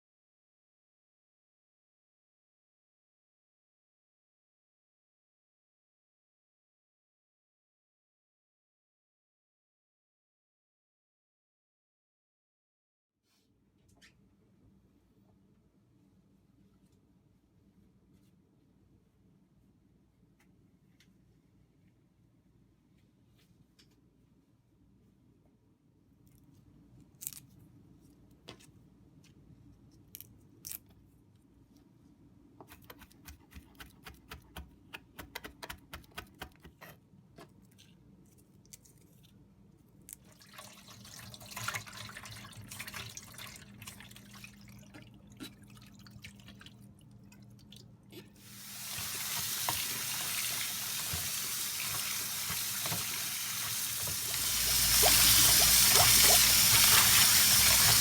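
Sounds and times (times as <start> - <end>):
tap running into sink: 48.8 - 58.0.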